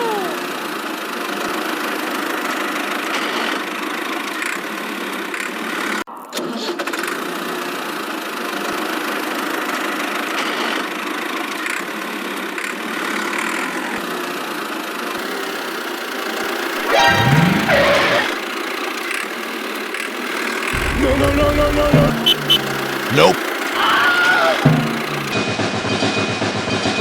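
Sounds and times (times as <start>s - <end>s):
small engine running: 15.2s - 25.4s.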